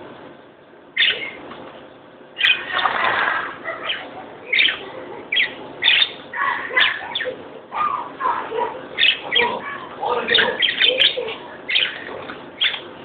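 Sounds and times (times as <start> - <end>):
small birds chirping: 0.9 - 1.5, 2.3 - 3.0, 3.6 - 13.0
wings flapping: 2.6 - 3.8.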